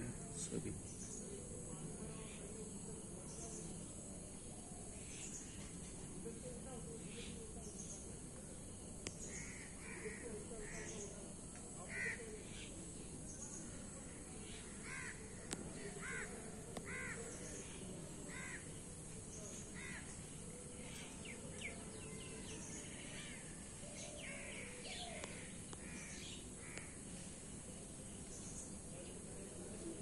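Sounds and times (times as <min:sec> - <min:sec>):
steady outdoor hiss: 0:00.0 - 0:30.0
birds calling: 0:19.4 - 0:27.4.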